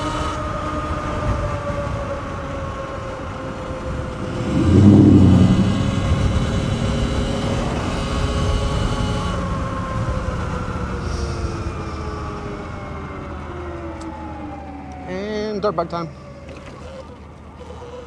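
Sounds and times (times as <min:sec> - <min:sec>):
electric motor whine: 0:00.0 - 0:00.4, 0:03.6 - 0:12.0
wind and road noise: 0:00.0 - 0:17.6
passing engine rumble: 0:02.9 - 0:15.0.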